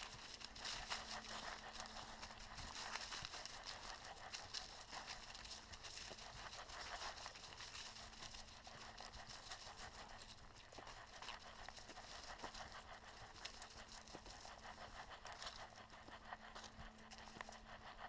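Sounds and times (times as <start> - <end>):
footsteps crunching on dry trail: 0.0 - 18.0
low steady hum: 0.0 - 18.0.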